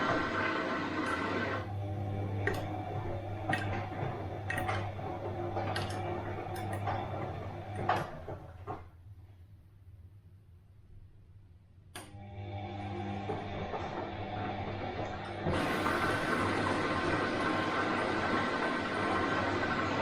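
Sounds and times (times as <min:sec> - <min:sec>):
washing machine motor hum: 0:00.0 - 0:09.2, 0:12.0 - 0:20.0
washing machine drum clicks: 0:02.4 - 0:08.9.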